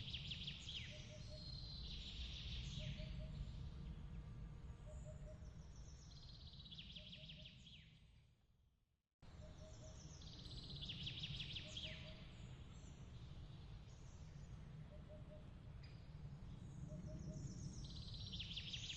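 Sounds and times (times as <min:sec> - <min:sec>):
low outdoor rumble: 0:00.0 - 0:06.5
faint birdsong: 0:00.0 - 0:08.2, 0:09.2 - 0:18.9.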